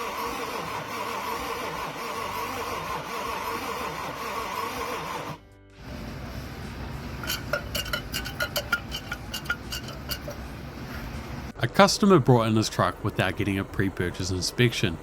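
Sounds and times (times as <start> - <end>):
steady wavering hum: 5.8 - 11.5
light metallic clinks and taps: 7.2 - 10.5.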